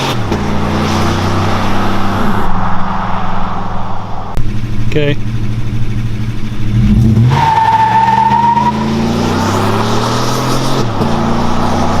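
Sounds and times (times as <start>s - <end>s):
truck engine accelerating: 0.0s - 12.0s
high squeal: 7.3s - 9.0s.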